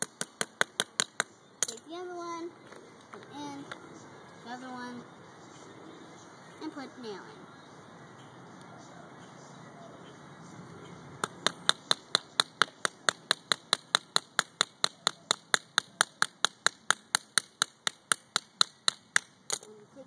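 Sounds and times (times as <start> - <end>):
hammer tapping a nail: 0.0 - 1.3, 11.2 - 19.7.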